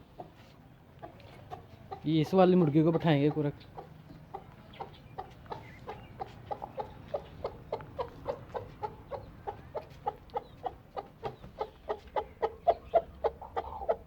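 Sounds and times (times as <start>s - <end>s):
hen clucking: 0.0s - 14.0s.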